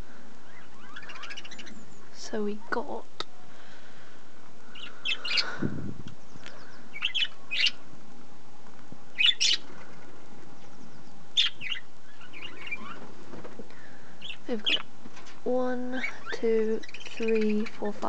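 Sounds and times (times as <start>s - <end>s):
budgerigars chirping: 0.4s - 2.8s, 4.7s - 5.6s, 6.2s - 7.8s, 9.1s - 13.1s, 14.2s - 14.9s, 15.9s - 18.0s.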